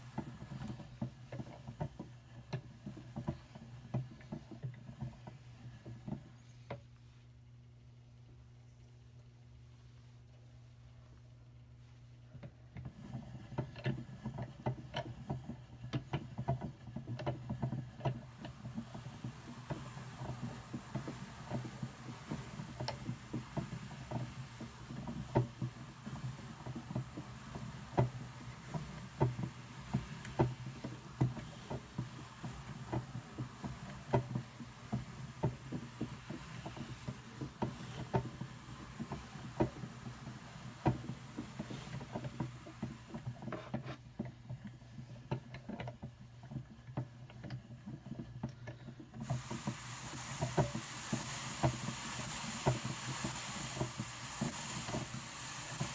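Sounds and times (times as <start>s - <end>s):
hand-cranked drum carder clicking: 0.0s - 6.8s, 12.4s - 55.9s.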